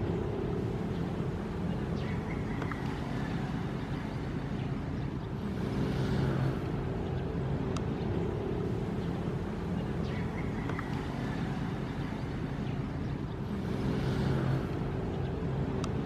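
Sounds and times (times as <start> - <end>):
ocean waves washing: 0.0 - 16.0
steady low hum: 0.0 - 16.0.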